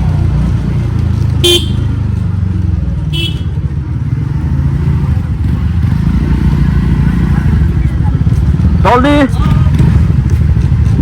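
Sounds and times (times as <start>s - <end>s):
scooter engine running: 0.0s - 11.0s
horn beeping: 1.4s - 2.0s, 3.1s - 3.6s.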